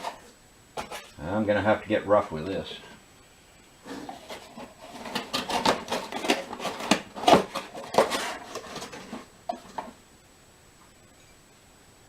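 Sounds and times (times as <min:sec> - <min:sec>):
styrofoam rubbing and scraping: 0:03.8 - 0:09.8.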